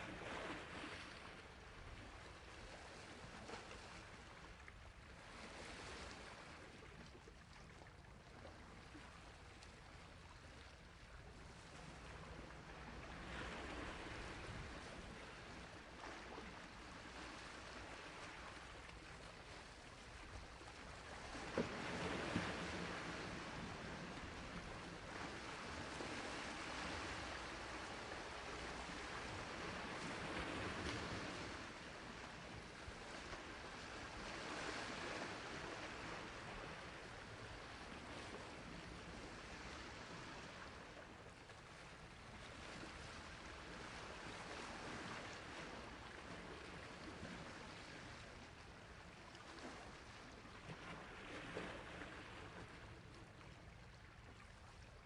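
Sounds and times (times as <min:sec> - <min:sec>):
sea waves washing on shore: 0:11.3 - 0:53.4.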